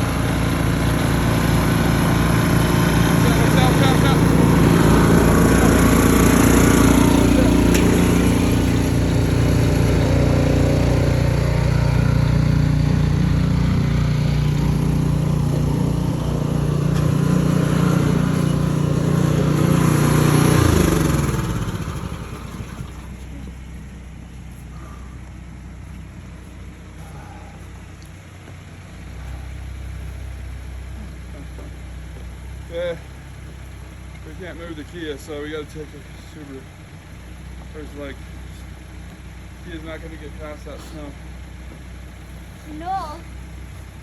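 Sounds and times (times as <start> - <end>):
engine running and winding down: 0.0 - 23.8.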